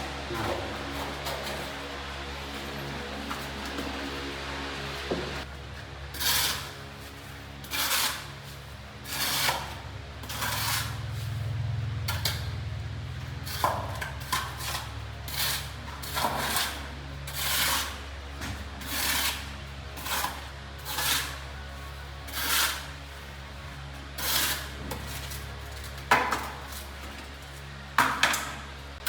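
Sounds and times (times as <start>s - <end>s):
steady low hum: 0.0s - 29.0s
rough scraping strokes: 6.1s - 11.5s, 13.4s - 18.1s, 18.8s - 23.4s, 24.2s - 25.7s.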